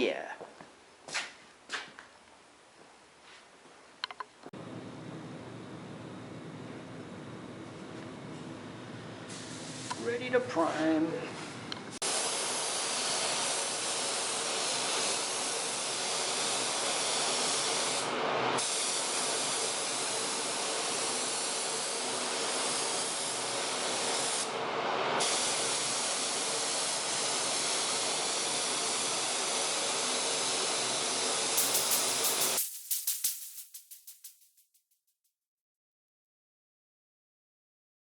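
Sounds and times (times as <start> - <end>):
quick clicks: 31.6 - 34.6
spray can hissing: 31.6 - 34.7.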